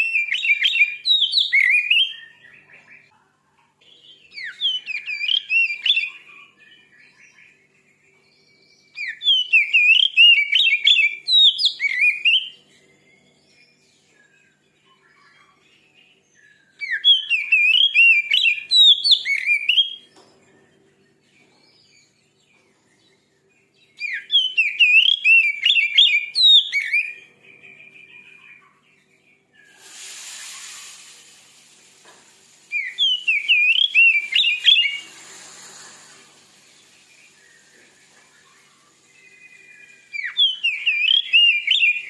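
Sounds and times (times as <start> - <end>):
bird singing whistled phrases: 0.0 - 2.9, 4.0 - 7.7, 8.8 - 20.1, 23.9 - 28.8, 32.7 - 35.2, 36.5 - 42.0
hiss: 29.7 - 40.2.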